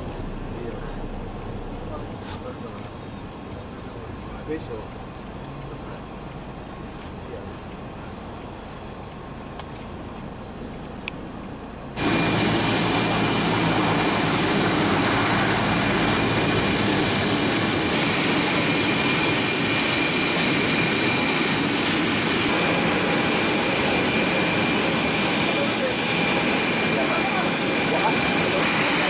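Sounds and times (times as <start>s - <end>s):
jet engine running: 12.0s - 29.0s.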